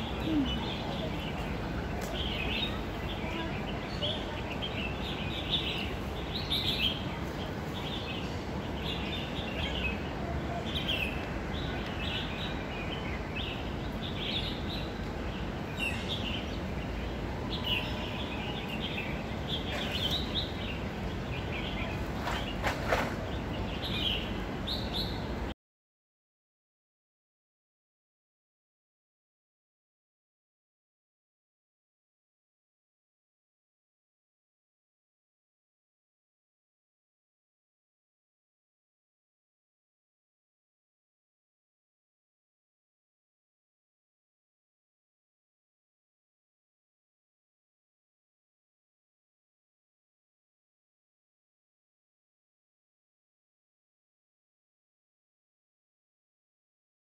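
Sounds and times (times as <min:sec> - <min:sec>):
small birds chirping: 0:00.0 - 0:25.3
low city hum: 0:00.0 - 0:25.6.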